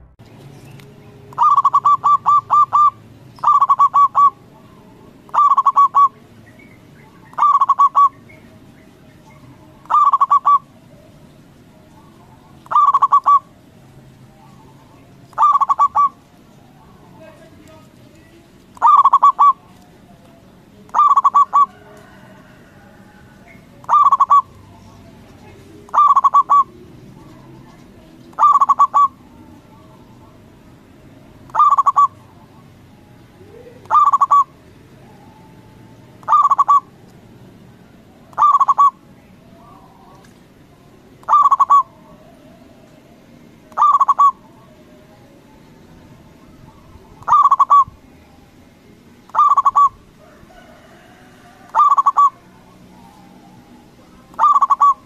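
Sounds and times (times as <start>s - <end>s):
dove cooing: 1.2s - 6.4s, 7.0s - 13.7s, 14.3s - 17.1s, 18.8s - 19.9s, 20.9s - 24.7s, 25.4s - 30.6s, 31.5s - 37.0s, 38.1s - 40.1s, 41.2s - 45.2s, 46.2s - 48.0s, 49.3s - 55.0s.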